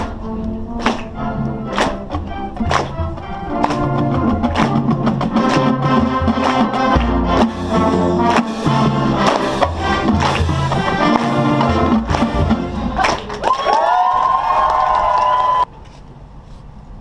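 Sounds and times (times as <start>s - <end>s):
brass chords: 0.0s - 13.4s
drum and cymbal hits: 4.0s - 13.2s.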